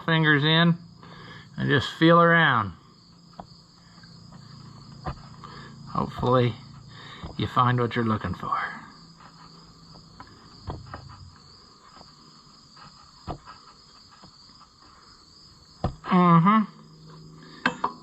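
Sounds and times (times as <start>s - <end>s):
crickets chirring: 0.0s - 18.0s.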